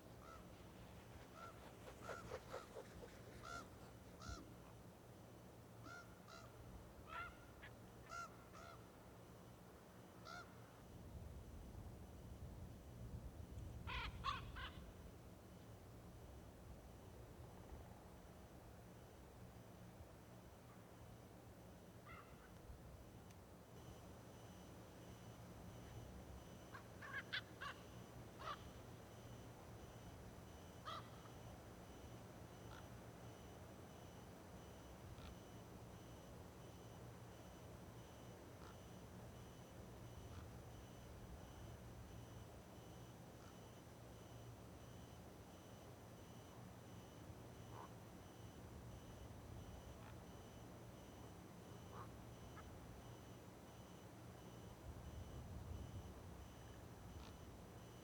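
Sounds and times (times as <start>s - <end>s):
low steady background hum: 0.0s - 58.0s
short bird calls: 0.2s - 0.5s, 1.3s - 4.6s, 22.1s - 22.5s, 26.6s - 29.4s, 30.8s - 31.4s
honking bird calls: 1.4s - 4.5s.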